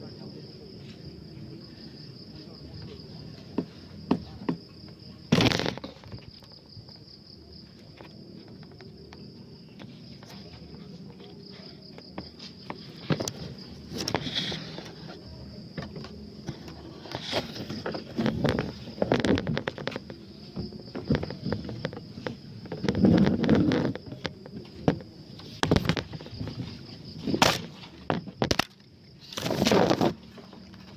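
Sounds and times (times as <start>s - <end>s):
insect chirring: 0.0s - 30.9s
sharp snaps and crackles: 21.0s - 30.9s.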